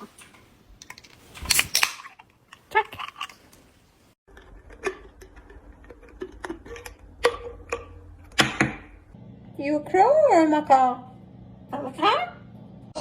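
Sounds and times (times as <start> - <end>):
steady low hum: 6.8 - 13.0.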